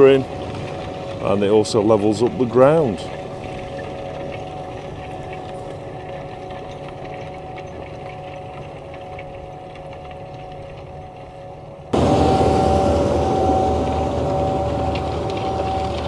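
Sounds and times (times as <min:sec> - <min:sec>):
steady whine: 0:00.0 - 0:16.0
tractor engine running: 0:11.9 - 0:16.0.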